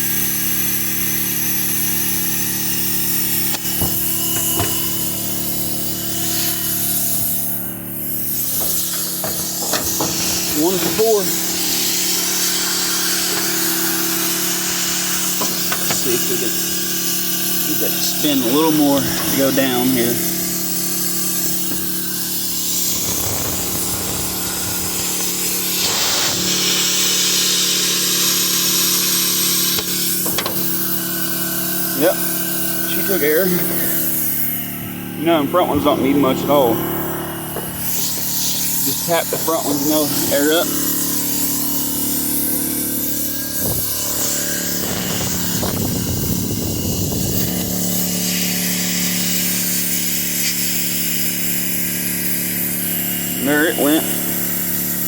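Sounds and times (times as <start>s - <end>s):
air compressor humming: 0.0s - 55.0s
compressed air hissing: 0.0s - 55.0s.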